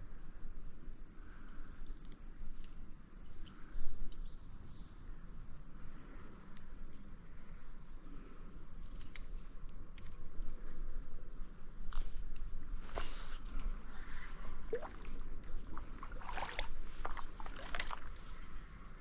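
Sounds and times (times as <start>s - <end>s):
insects chirring: 0.0s - 19.0s
clicks and rustling: 16.5s - 18.3s.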